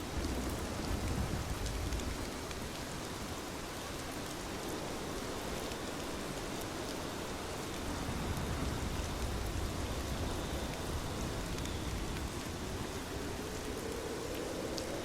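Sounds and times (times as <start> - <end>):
steady rain falling: 0.0 - 15.0
raindrop ticks: 0.2 - 3.2, 7.6 - 14.9.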